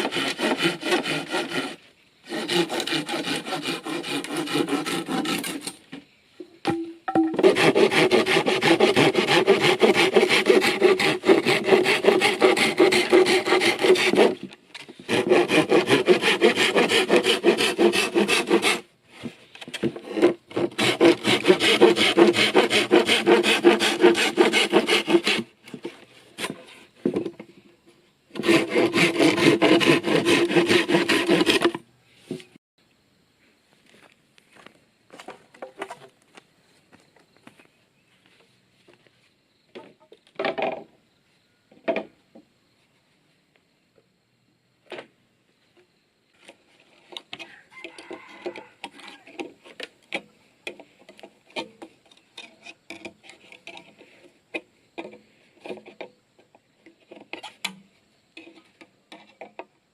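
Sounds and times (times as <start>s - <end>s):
hand saw cutting bamboo: 0.0s - 5.8s, 7.3s - 26.7s, 28.3s - 31.8s.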